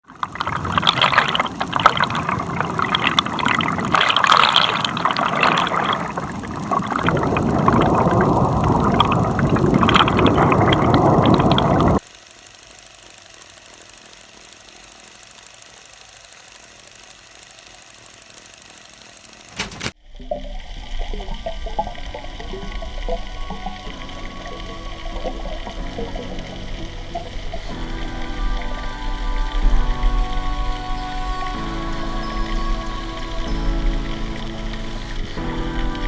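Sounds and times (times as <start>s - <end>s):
water splashing and bubbling: 0.0s - 12.0s, 19.9s - 31.6s
faint steady hiss: 20.5s - 36.0s.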